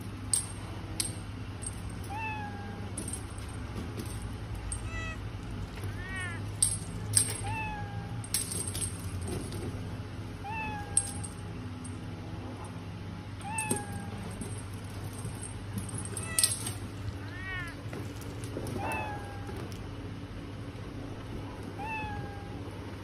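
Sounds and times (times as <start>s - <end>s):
cat meowing: 2.1s - 2.9s, 4.9s - 5.2s, 5.9s - 6.4s, 7.4s - 8.2s, 10.4s - 11.1s, 13.4s - 14.2s, 17.2s - 17.8s, 18.7s - 19.6s, 21.7s - 22.6s.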